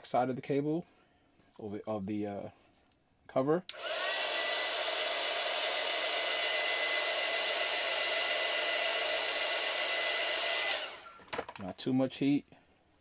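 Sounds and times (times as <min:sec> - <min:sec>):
heat gun switch click: 0:03.7 - 0:04.1, 0:10.6 - 0:11.0
heat gun fan whining: 0:03.7 - 0:11.6.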